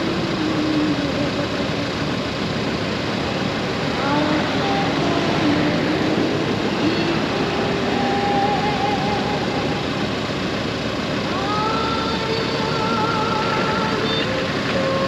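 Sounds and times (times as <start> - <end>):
motorcycle engine running: 0.0 - 15.0
wind and road noise: 0.0 - 15.0
faint wavering tones: 4.0 - 15.0.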